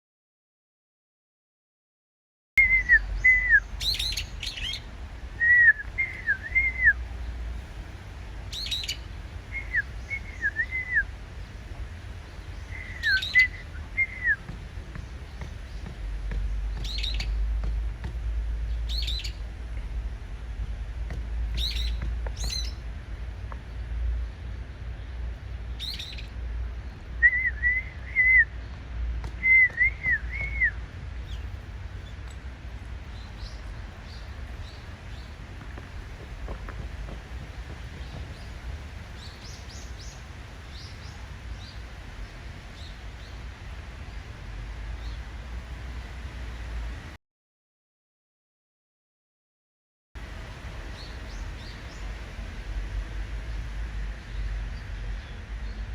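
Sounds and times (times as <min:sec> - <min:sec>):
bird shrill calls: 0:02.6 - 0:07.0, 0:08.5 - 0:09.0, 0:12.6 - 0:14.4
steady low rumble: 0:02.6 - 0:47.2.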